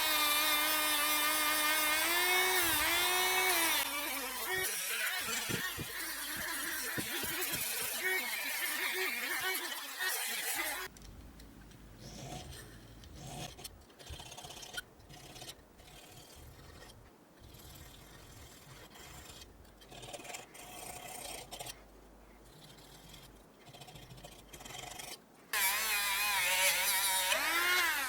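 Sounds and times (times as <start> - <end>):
scraping and rubbing on workpiece: 2.0 - 10.9.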